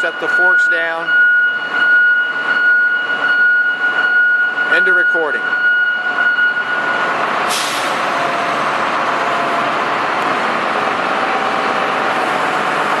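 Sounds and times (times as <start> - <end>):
diesel engine running: 6.8 - 13.0.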